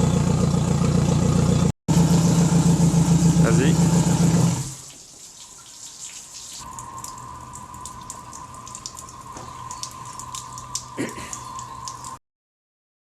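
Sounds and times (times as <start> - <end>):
hose water spattering: 1.9 - 12.2.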